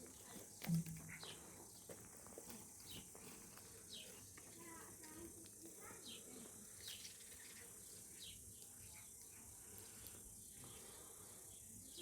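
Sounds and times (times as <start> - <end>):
faint bird chirps: 5.9 - 12.0.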